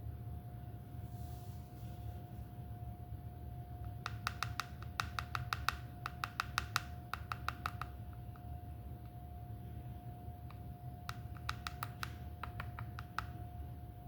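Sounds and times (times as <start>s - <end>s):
faint steady hum: 0.0s - 14.0s
rapid sharp clicks: 4.0s - 8.4s, 11.1s - 13.4s.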